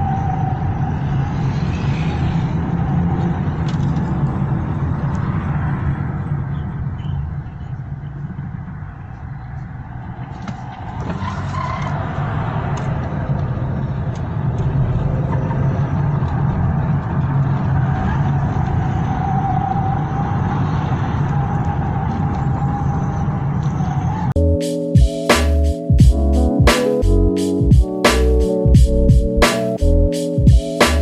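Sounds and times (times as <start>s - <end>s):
vehicle engine and road noise: 0.0s - 24.7s.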